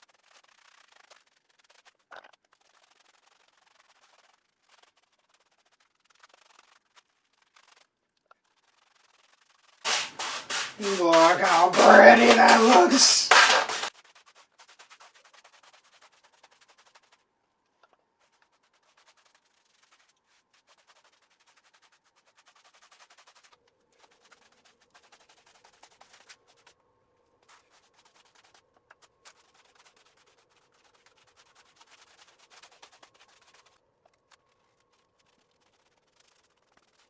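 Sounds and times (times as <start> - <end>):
paintbrush scratching on masonry: 9.9 - 13.9.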